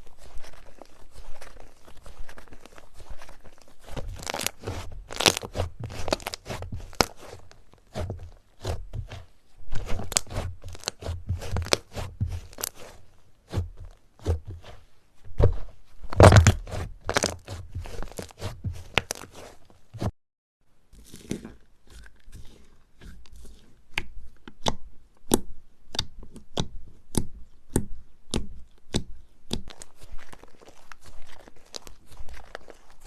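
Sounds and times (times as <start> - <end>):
slime squeezed crackling and popping: 0.1 - 9.2, 9.8 - 13.6, 16.1 - 19.5, 24.6 - 33.0.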